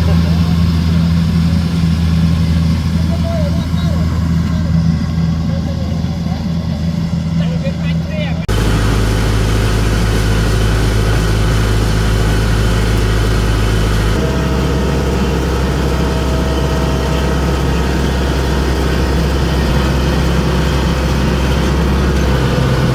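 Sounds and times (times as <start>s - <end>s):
harvester engine humming: 0.0s - 22.9s.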